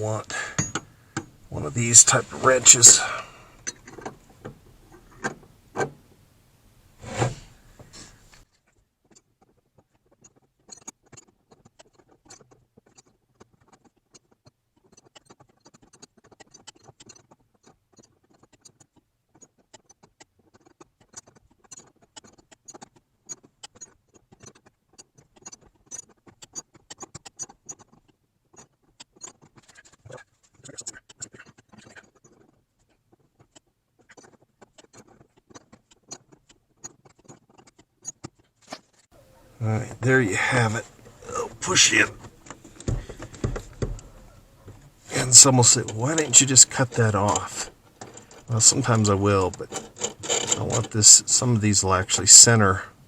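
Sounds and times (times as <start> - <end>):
tool ticking and scraping metal: 0.0 - 6.0, 8.3 - 53.0
wrench clinking on metal: 0.3 - 1.3.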